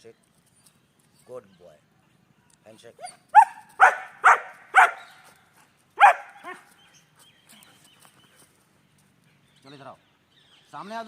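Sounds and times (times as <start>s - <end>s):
dog barking: 3.0s - 5.2s, 6.0s - 6.7s.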